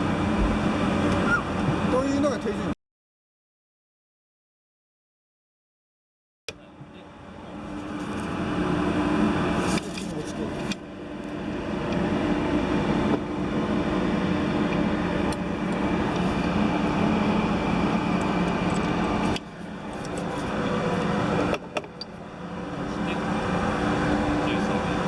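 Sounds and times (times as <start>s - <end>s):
machinery drone: 6.5s - 25.0s.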